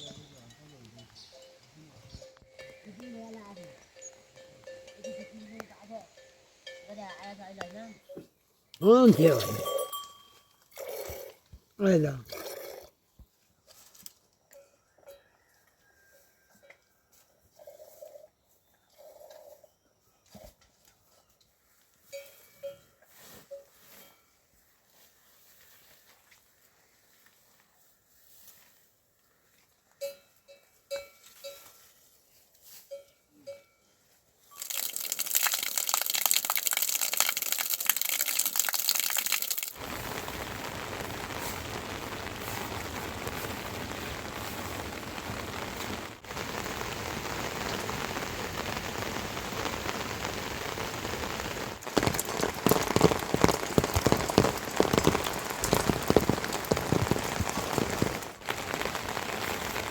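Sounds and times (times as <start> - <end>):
rain drop hits: 8.8 - 9.7, 34.6 - 59.9
rain falling: 8.8 - 9.8, 34.6 - 59.9.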